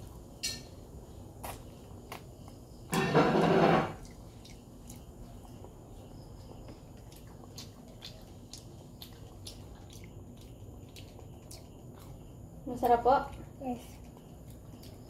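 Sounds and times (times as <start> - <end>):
child chewing food: 0.0 - 15.0.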